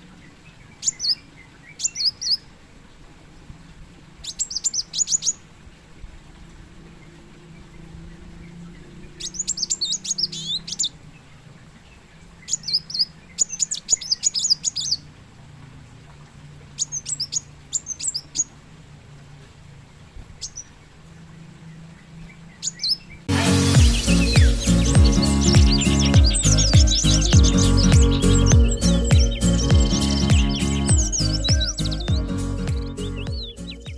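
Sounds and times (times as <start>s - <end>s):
sunbird twittering chirps: 0.2s - 2.5s, 4.2s - 5.4s, 7.6s - 15.1s, 16.8s - 18.6s, 20.3s - 21.0s, 21.6s - 33.9s
loud music: 23.3s - 33.9s.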